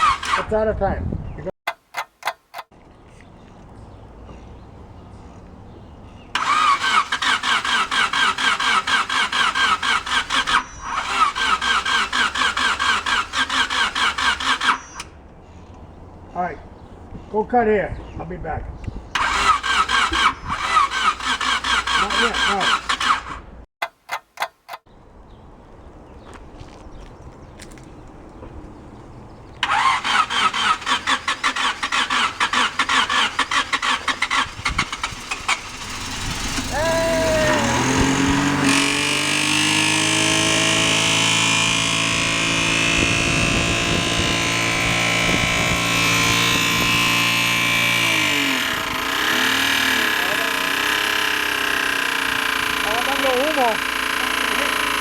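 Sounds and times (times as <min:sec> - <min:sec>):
starter motor cranking engine: 0:00.0 - 0:00.6, 0:06.4 - 0:15.1, 0:19.1 - 0:23.5, 0:29.6 - 0:55.0.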